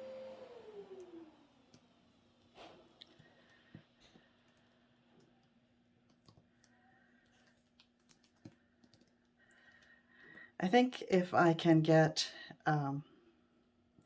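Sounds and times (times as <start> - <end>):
faint clicks and taps: 2.4 - 10.5.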